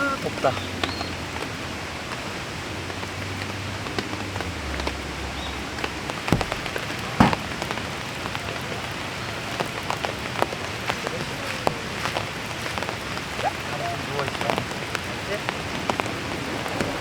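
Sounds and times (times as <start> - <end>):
steady rain falling: 0.0 - 17.0
heavier drops tapping: 6.3 - 7.8.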